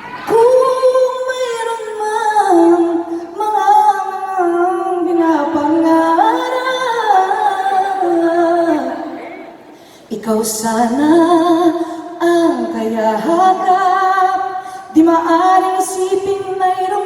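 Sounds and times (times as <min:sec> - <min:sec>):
woman singing unaccompanied: 0:00.2 - 0:17.0.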